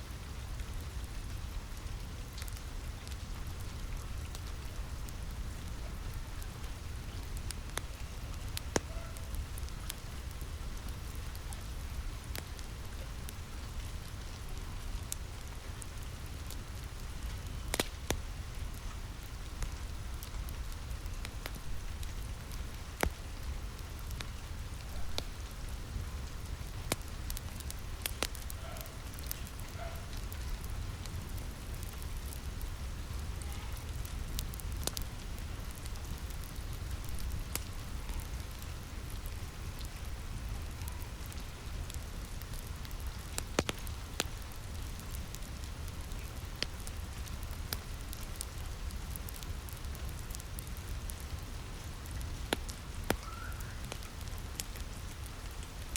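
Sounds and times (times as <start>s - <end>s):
rain on a roof: 0.0s - 55.9s
wood fire crackling: 0.0s - 55.9s.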